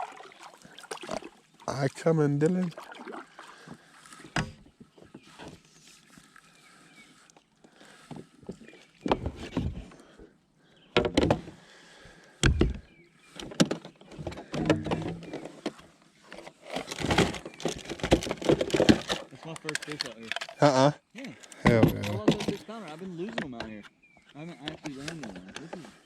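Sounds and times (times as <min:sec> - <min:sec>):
paddle strokes in water: 0:00.0 - 0:01.6, 0:02.7 - 0:10.3
paddle knocking on plastic hull: 0:12.4 - 0:12.9.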